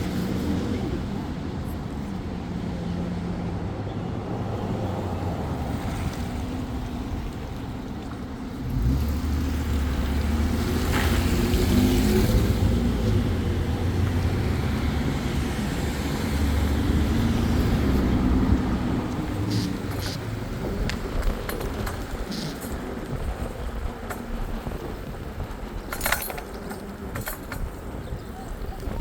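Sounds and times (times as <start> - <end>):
wind and road noise: 0.0 - 29.0
vehicle engine running: 8.6 - 29.0.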